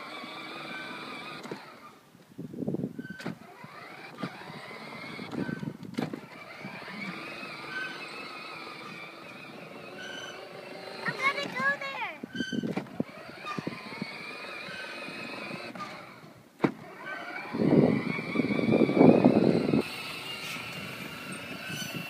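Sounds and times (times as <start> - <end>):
toy car electric motor whining: 0.0 - 2.0, 3.0 - 22.0
wheels rumbling: 0.0 - 22.0.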